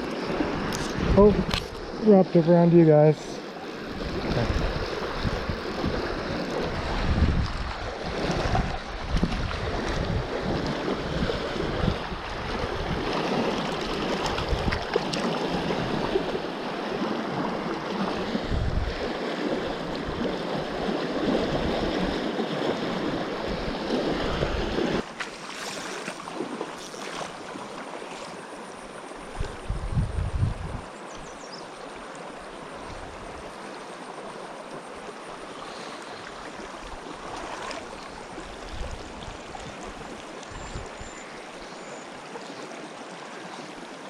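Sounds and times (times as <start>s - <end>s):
wind buffeting microphone: 0.0s - 2.0s, 3.8s - 16.3s, 17.3s - 25.0s, 29.2s - 30.9s
river water rushing: 0.0s - 29.4s, 30.8s - 44.0s.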